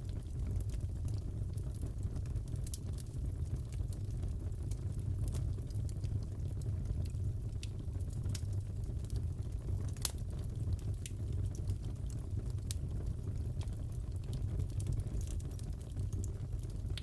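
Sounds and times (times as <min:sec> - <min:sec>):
fire popping and crackling: 0:00.0 - 0:17.0
fire rumbling: 0:00.0 - 0:17.0.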